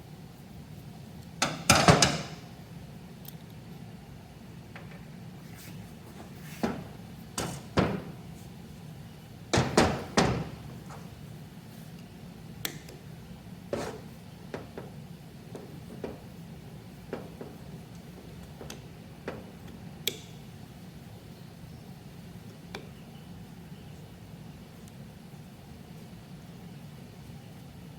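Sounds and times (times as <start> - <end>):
tools and metal parts knocking: 17.1 - 19.6.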